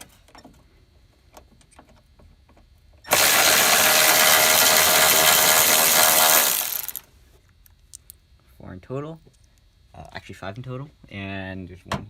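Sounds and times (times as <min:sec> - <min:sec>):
cordless ratchet spinning: 0:03.1 - 0:07.0.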